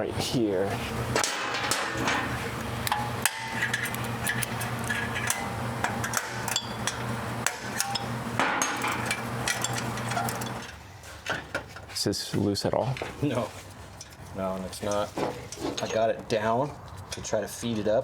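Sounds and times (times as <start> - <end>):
steady low hum: 0.0 - 15.6
hand tools clinking on metal: 1.2 - 11.5, 14.8 - 16.1.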